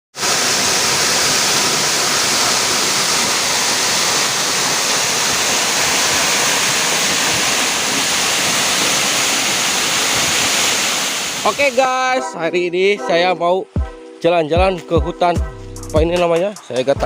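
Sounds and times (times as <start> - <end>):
waterfall rushing: 0.1 - 12.3.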